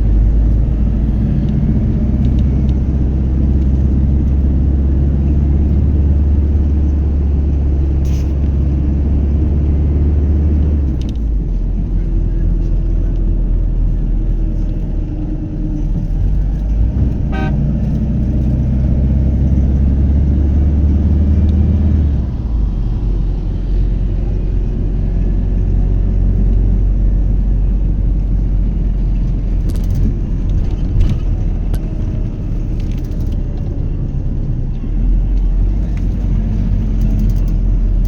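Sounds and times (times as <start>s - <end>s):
vehicle engines rumbling: 0.0s - 38.0s
car horn toot: 17.2s - 17.7s.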